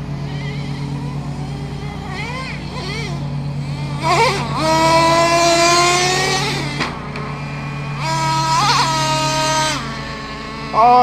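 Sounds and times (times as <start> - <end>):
nitro engine revving: 0.0 - 11.0.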